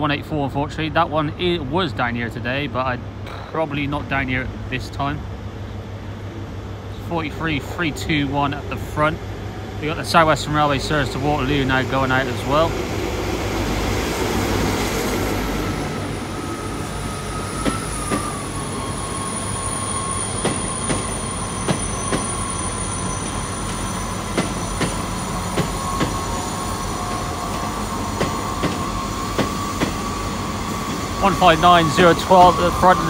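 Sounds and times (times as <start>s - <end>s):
low train rumble: 0.0s - 33.0s
high wheel squeal: 15.3s - 33.0s
train wheels clicking over rail joints: 17.6s - 18.4s, 20.4s - 26.4s, 27.5s - 30.1s.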